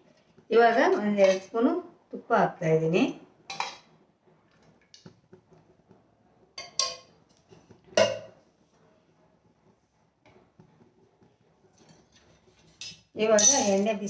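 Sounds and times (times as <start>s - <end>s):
spoon clinking against pan: 6.6s - 7.1s, 12.8s - 13.8s.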